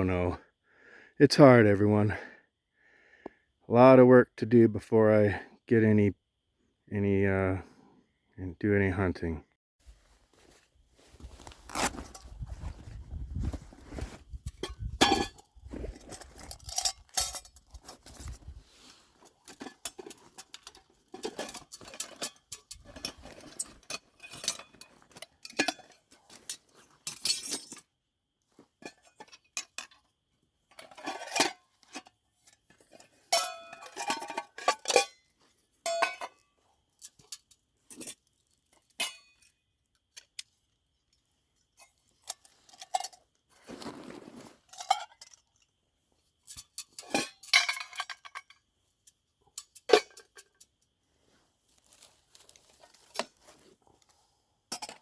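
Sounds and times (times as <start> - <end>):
metallic clinks and knocks: 11.8 - 18.6, 19.2 - 27.9, 28.8 - 39.6, 41.6 - 43.4, 44.7 - 45.7, 46.4 - 50.9, 54.7 - 55.0.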